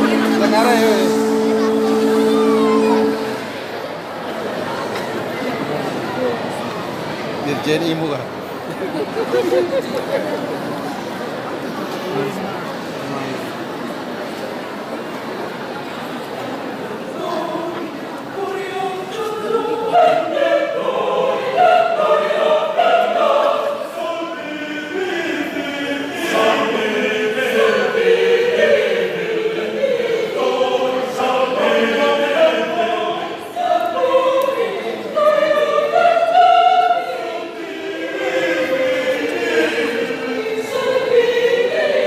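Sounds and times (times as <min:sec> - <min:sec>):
choir singing: 0:00.0 - 0:04.1, 0:17.2 - 0:42.0.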